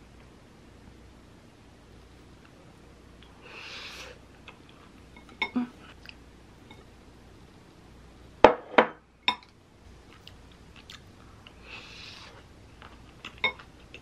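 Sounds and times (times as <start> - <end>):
chewing crunchy food: 10.0 - 11.6, 12.4 - 14.0.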